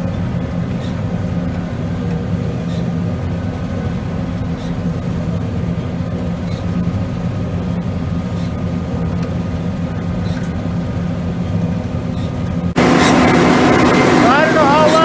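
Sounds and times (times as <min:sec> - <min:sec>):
combine harvester running: 0:00.0 - 0:15.0.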